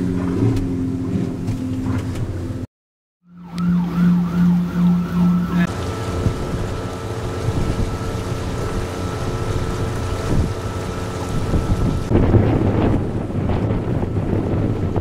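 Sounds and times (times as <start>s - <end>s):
boat motor humming: 0.0s - 2.7s, 3.3s - 15.0s
water: 0.0s - 2.7s, 3.3s - 15.0s
siren wailing: 3.2s - 7.1s
pulsing low tone: 3.3s - 12.4s.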